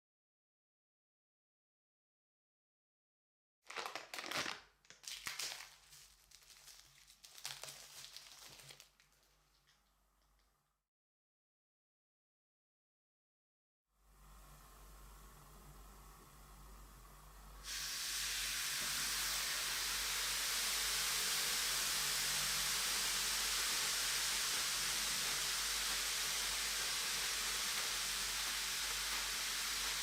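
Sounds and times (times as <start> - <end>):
bath bomb fizzing in water: 17.6 - 30.0.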